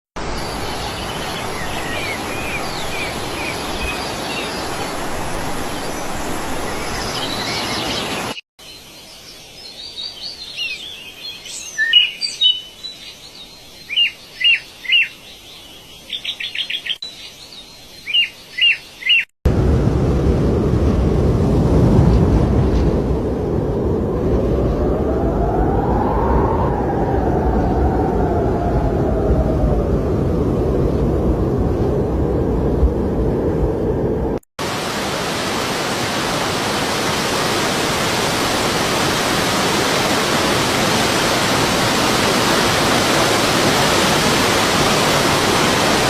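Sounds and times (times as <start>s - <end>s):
steady rushing noise: 0.2s - 8.4s, 19.5s - 46.0s
birds chirping and calling: 0.4s - 8.4s
loud low rushing noise: 19.5s - 35.4s.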